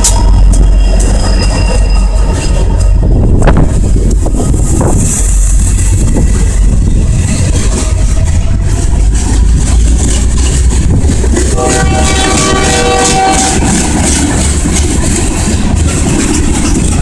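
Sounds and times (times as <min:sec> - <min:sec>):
steel wheels rumbling on rail: 0:00.0 - 0:17.0.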